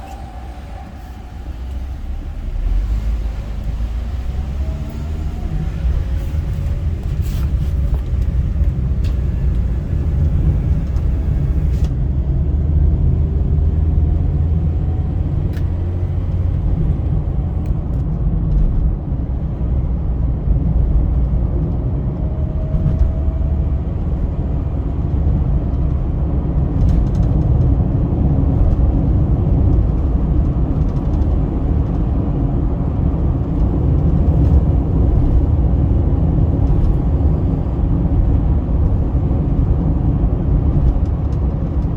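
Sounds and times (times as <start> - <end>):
car driving on highway: 0.0 - 41.9.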